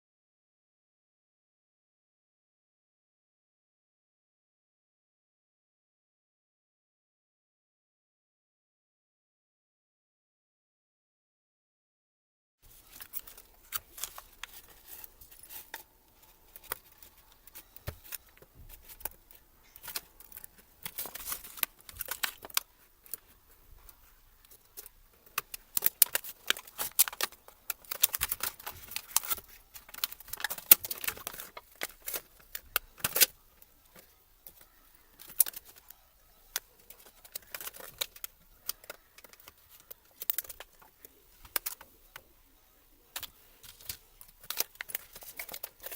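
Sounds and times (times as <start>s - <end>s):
small tools being handled: 12.7s - 42.3s, 43.0s - 45.9s
plastic parts clicking and scraping: 12.7s - 45.9s.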